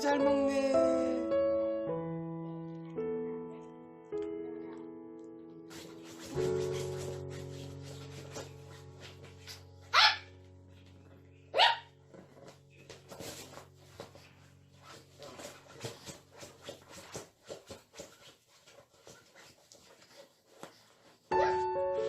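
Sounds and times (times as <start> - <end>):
dog barking: 9.9 - 10.3, 11.5 - 11.9.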